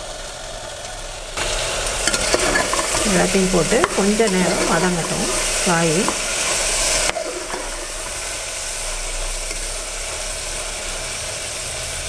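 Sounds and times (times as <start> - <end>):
vegetables sizzling in hot oil: 0.0 - 12.0
spatula scraping pan: 1.9 - 9.6.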